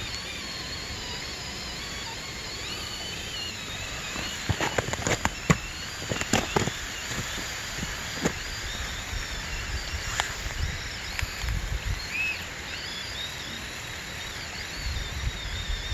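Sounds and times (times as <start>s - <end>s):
small electric motor whining: 0.0s - 15.9s
clicks and knocks over rock: 4.0s - 8.4s.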